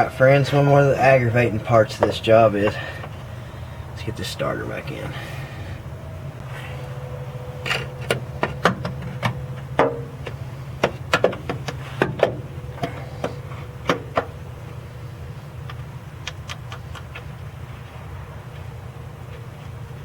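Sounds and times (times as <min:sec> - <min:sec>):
steady low hum: 0:00.0 - 0:20.0
sharp knocks and clicks: 0:07.7 - 0:14.3.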